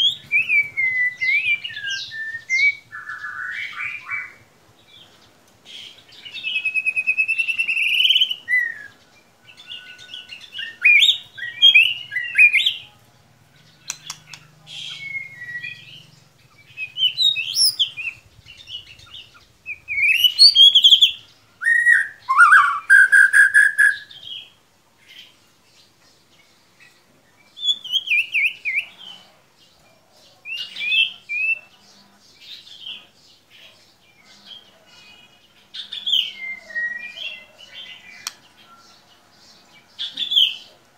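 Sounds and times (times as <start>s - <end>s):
songbird singing whistled phrases: 0.0s - 4.4s, 6.3s - 9.0s, 9.6s - 12.8s, 13.8s - 24.5s, 27.4s - 28.9s, 35.8s - 38.8s.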